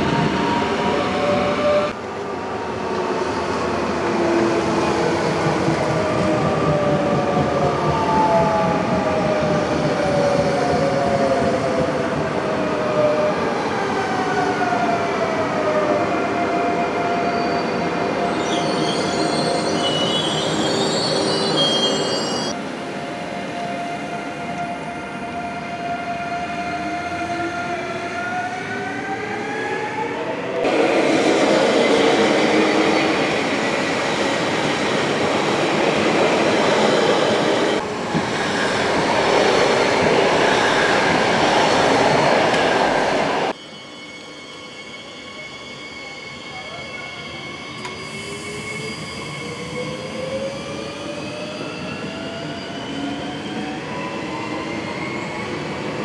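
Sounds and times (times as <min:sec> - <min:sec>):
high wheel squeal: 0:17.3 - 0:22.6, 0:43.5 - 0:53.7.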